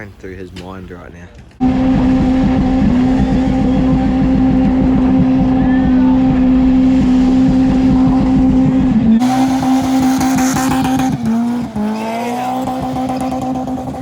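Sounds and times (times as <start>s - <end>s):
road and wind rumble: 0.0s - 14.0s
car engine droning: 1.6s - 14.0s.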